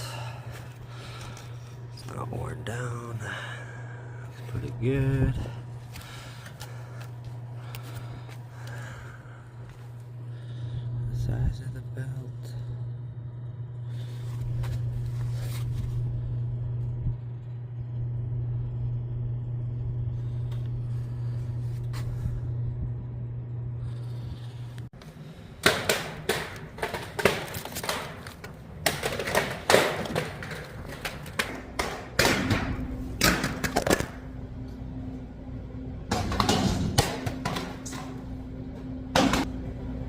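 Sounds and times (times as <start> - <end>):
steady low hum: 0.0 - 40.0
knocks and clanks of handling: 25.0 - 34.2, 36.1 - 38.2.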